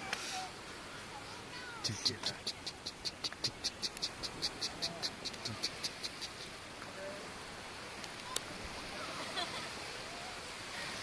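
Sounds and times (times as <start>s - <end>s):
insect chirping: 1.9s - 6.6s.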